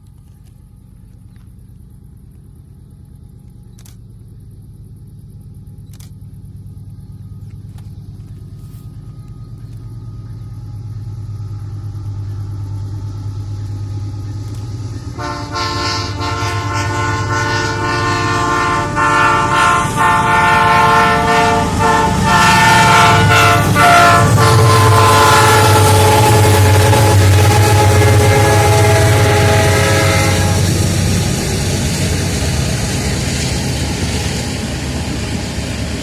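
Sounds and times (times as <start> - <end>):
locomotive rumble: 0.0 - 36.0
locomotive air horn chord: 15.1 - 31.3.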